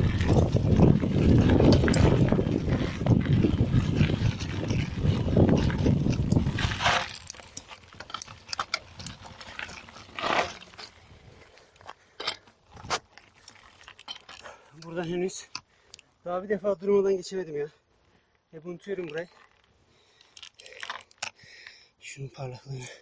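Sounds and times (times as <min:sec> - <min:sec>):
microphone rumble: 0:00.0 - 0:07.0
mountain bike rattling over trail: 0:00.0 - 0:18.1, 0:18.7 - 0:21.6.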